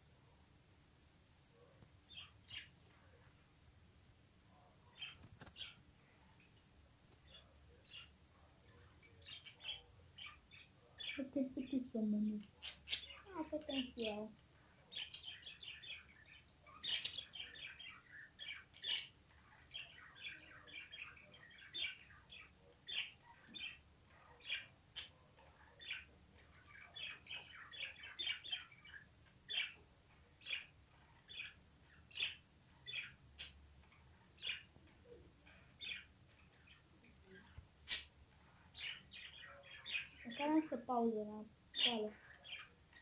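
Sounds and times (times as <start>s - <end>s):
parrots chirping: 7.3s - 14.3s, 14.9s - 41.0s.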